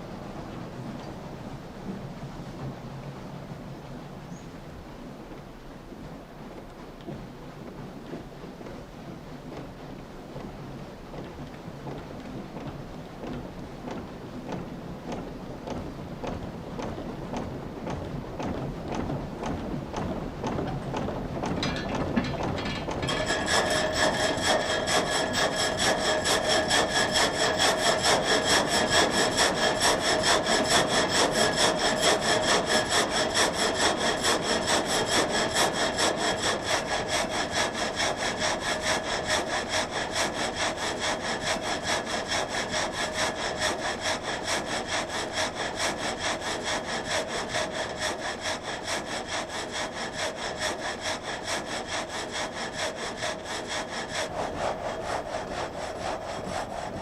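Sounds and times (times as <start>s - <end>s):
frame saw cutting timber: 21.5s - 57.0s.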